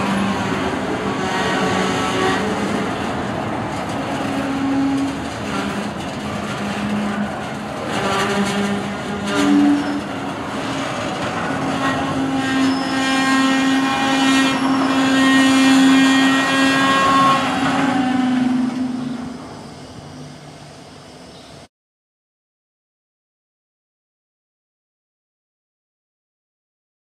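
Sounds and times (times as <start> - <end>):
freight train wheels clicking on rails: 0.0 - 20.3
train wheels squealing: 4.2 - 11.0, 11.7 - 21.7.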